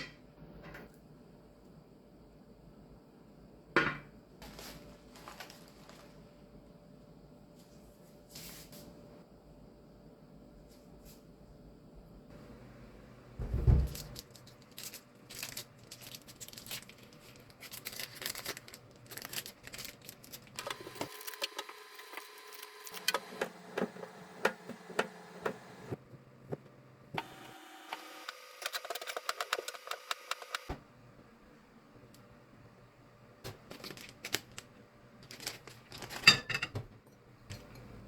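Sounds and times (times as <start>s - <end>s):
kitchen items clicking and rattling: 13.4s - 21.5s, 33.5s - 38.0s.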